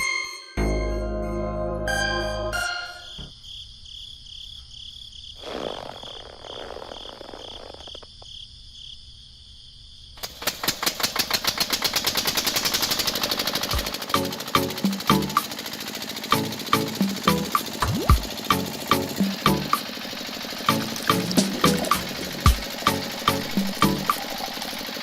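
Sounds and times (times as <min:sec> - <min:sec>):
loud fast mechanical rattle: 0:10.2 - 0:25.0
high pulsing tone: 0:17.3 - 0:19.8, 0:20.7 - 0:25.0.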